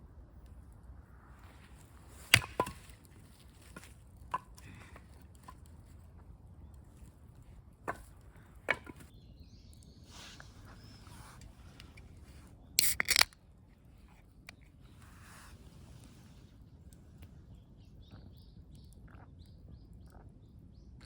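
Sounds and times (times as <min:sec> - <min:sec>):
sharp knocks and cracks: 0:02.2 - 0:03.0.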